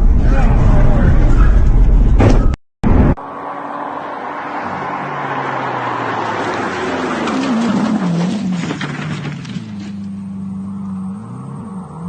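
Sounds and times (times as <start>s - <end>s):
road noise: 0.0s - 12.0s
vehicle engine while driving: 3.1s - 12.0s.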